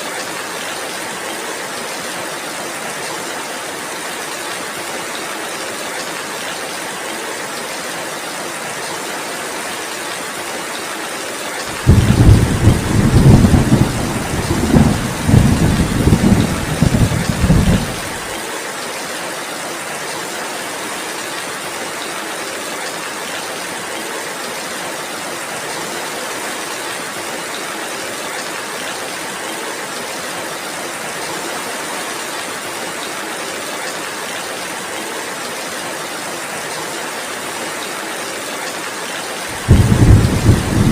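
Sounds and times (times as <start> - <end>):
heavy rain: 0.0 - 40.9
thunder rumbling: 11.7 - 18.3, 39.5 - 40.9.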